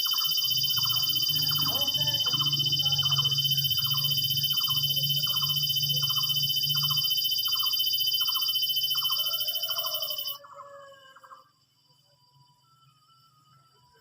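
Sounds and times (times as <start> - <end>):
low hum: 0.0 - 9.2
insect trilling: 0.0 - 11.4.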